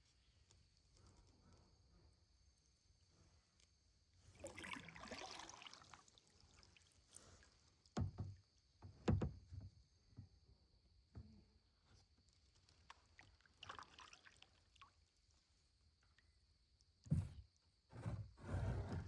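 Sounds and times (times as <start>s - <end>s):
kayak paddle stroke splashing: 4.4s - 6.8s.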